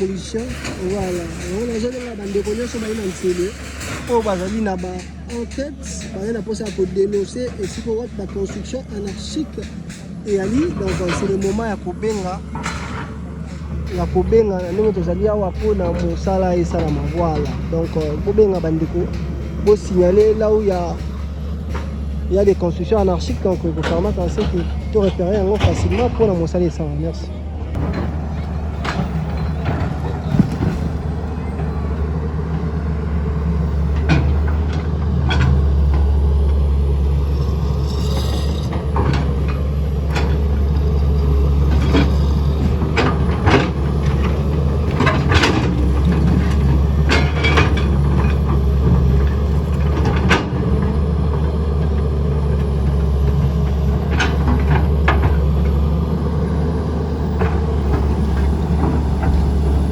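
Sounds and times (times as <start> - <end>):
metal knocks and clatter: 0.0 - 32.6, 33.2 - 59.9
heavy diesel engine running: 0.0 - 59.9.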